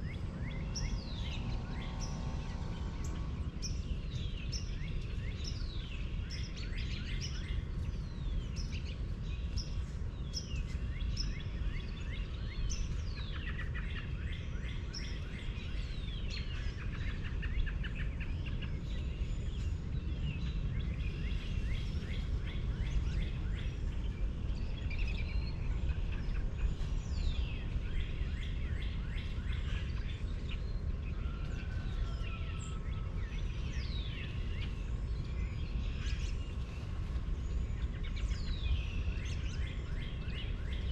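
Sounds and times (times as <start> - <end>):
low rumble: 0.0 - 5.2
small birds chirping: 0.0 - 40.9.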